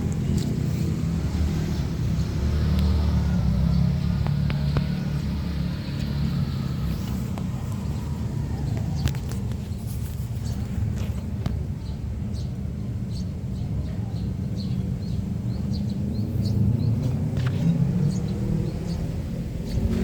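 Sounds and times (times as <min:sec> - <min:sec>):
car engine idling: 0:00.0 - 0:12.3.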